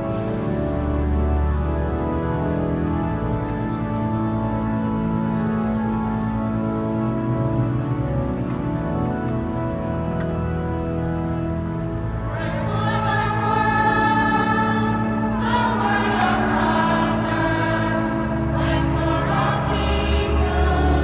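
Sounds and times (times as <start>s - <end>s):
organ chords: 0.0s - 21.0s
choir singing: 12.3s - 21.0s.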